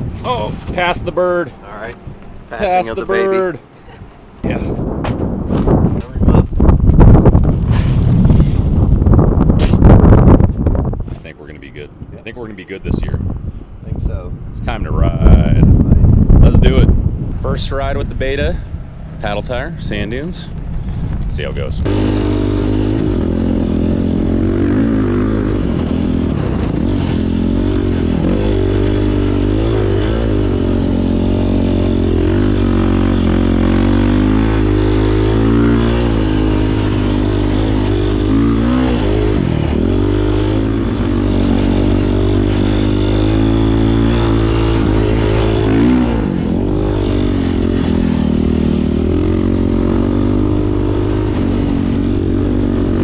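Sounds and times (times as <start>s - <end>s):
dirt bike engine revving: 21.8s - 53.0s.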